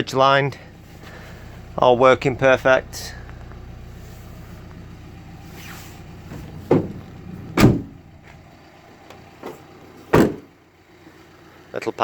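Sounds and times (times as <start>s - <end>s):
low steady hum: 0.0s - 11.8s
van doors slamming: 5.5s - 8.5s, 9.1s - 10.7s.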